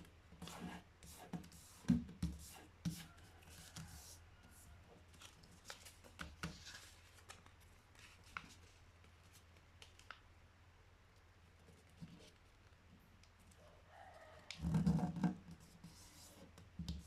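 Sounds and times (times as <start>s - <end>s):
paper rustling and folding: 5.1s - 10.2s.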